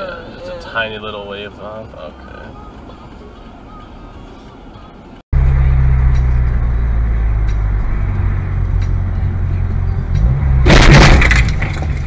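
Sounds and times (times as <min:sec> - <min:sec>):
road noise: 0:00.0 - 0:12.0
vehicle engine drone: 0:04.4 - 0:12.0
loud crash: 0:10.6 - 0:12.0.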